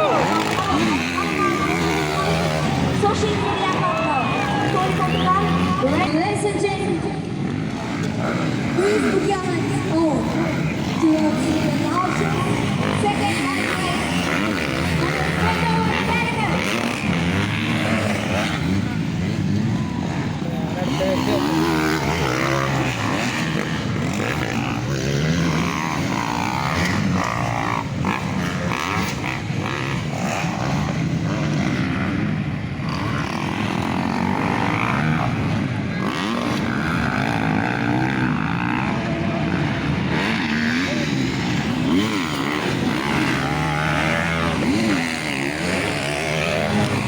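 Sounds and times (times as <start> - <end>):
motorcycle engines revving: 0.0 - 47.0.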